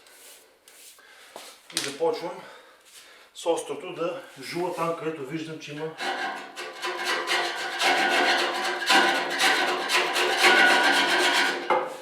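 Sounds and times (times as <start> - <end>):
chisel scraping metal walls: 5.9 - 12.0.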